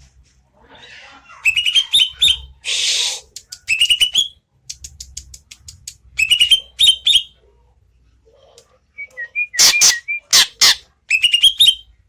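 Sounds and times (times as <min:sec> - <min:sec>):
bird chirping: 0:01.4 - 0:02.6, 0:03.3 - 0:07.4, 0:09.0 - 0:12.0.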